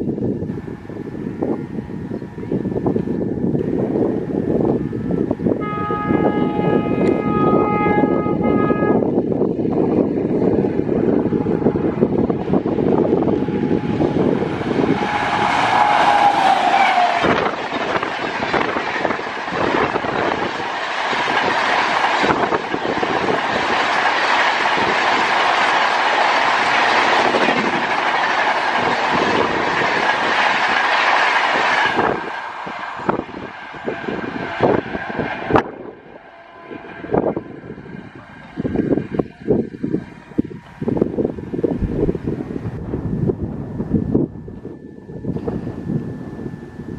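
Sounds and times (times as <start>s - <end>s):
train wheels clattering over rails: 9.3s - 35.8s.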